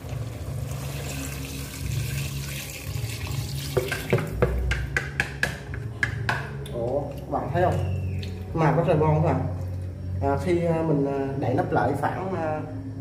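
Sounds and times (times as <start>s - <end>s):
liquid pouring into a pot: 0.0s - 4.4s.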